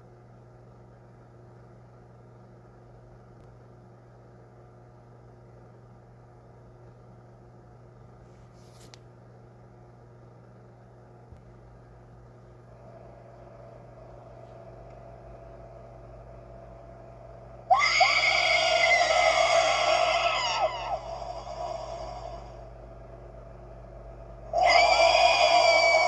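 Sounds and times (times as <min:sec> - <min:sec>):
low steady hum: 0:00.0 - 0:26.0
shrill monster scream: 0:17.7 - 0:22.7, 0:24.5 - 0:26.0.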